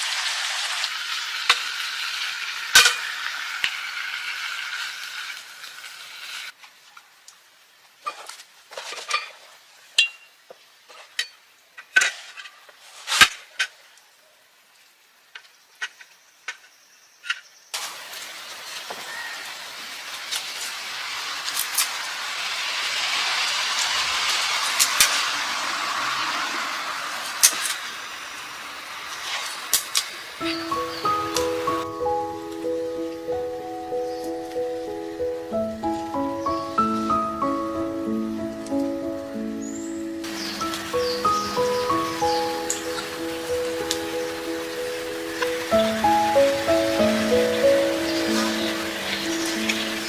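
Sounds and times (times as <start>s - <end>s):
steady hiss: 0.0s - 10.0s, 17.8s - 50.0s
cooking utensils and pots clinking: 2.8s - 3.8s.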